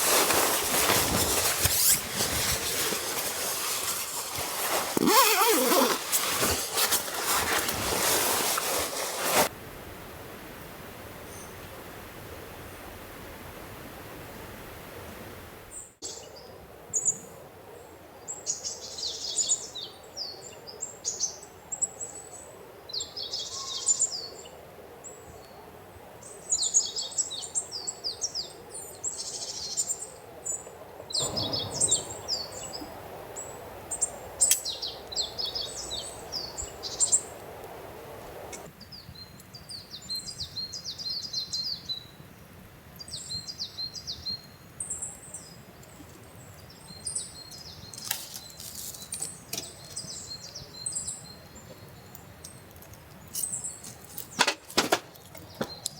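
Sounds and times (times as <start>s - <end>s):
low outdoor background noise: 0.0s - 55.9s
songbirds chirping: 15.7s - 55.9s.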